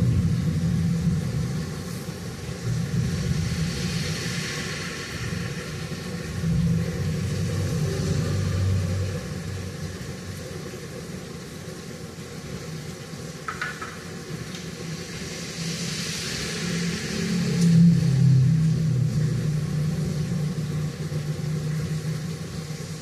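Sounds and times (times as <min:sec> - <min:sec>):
low rumble: 0:00.0 - 0:11.2, 0:16.8 - 0:23.0
rain falling: 0:00.0 - 0:23.0.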